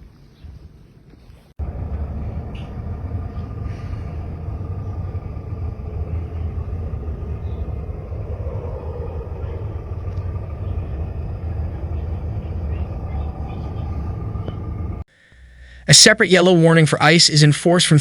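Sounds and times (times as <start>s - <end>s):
steady low rumble: 1.6s - 15.8s.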